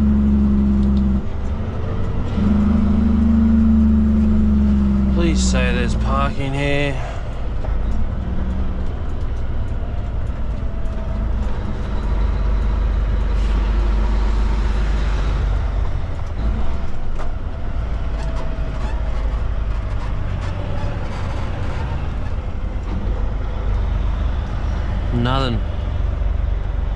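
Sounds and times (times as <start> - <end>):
diesel truck engine droning: 0.0 - 26.9.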